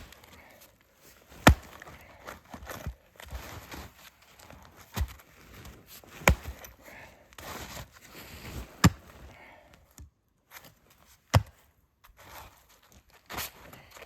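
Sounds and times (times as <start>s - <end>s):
axe chopping wood: 0.0s - 0.4s, 1.2s - 3.6s, 4.9s - 5.2s, 6.1s - 7.6s, 8.6s - 9.2s, 11.3s - 11.6s
rustling: 0.0s - 9.3s.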